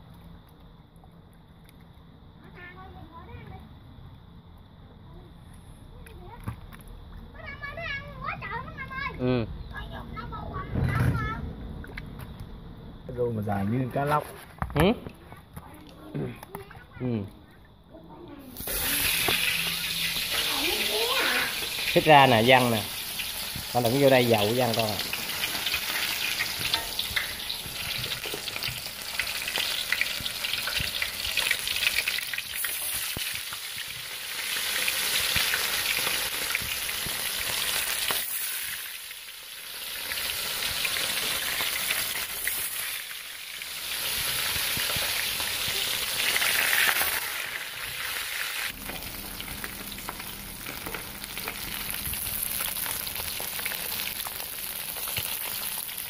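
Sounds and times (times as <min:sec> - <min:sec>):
fish deep-frying in hot oil: 0:18.5 - 0:56.0.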